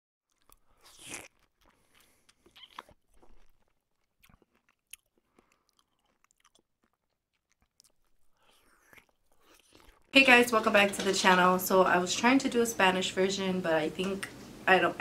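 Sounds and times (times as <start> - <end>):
crunching bites and chewing: 0.2 - 10.1
mouth clicks: 0.4 - 3.5.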